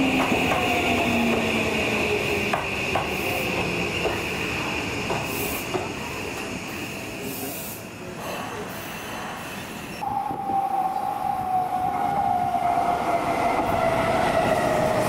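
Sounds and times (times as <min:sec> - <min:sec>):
train wheels clicking over rail joints: 0:02.4 - 0:06.0.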